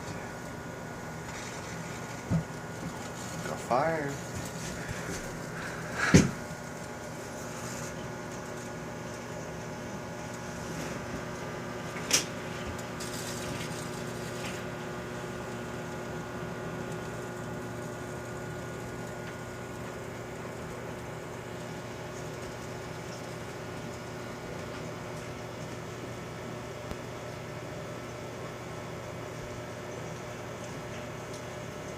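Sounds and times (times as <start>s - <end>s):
microwave oven humming: 0.0s - 31.9s.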